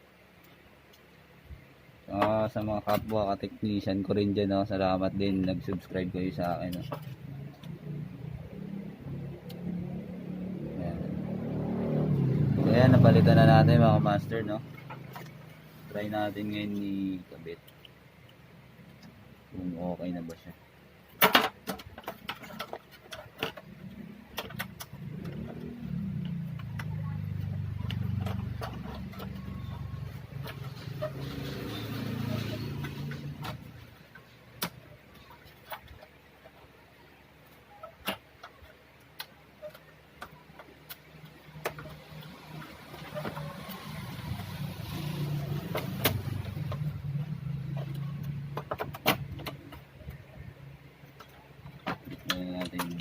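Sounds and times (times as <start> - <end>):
sharp clicks and knocks: 2.1 - 3.3, 5.2 - 10.4, 13.6 - 15.6, 21.0 - 53.0.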